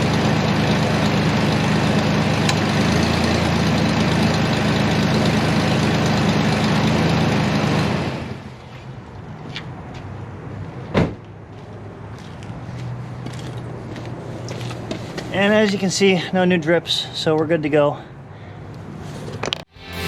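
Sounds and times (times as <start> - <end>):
truck engine idling: 0.0 - 8.6.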